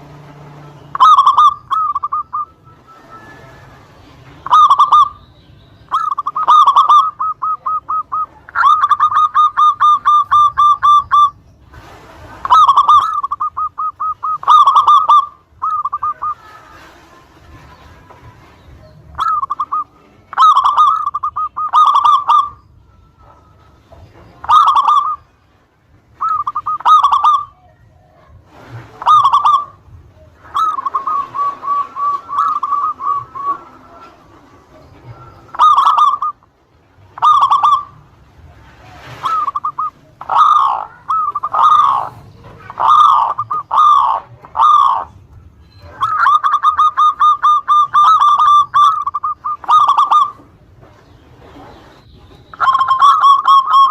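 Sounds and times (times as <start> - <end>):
dove cooing: 0.0 - 5.3, 5.9 - 25.3, 26.1 - 53.9
fast rattling trill: 39.2 - 45.1.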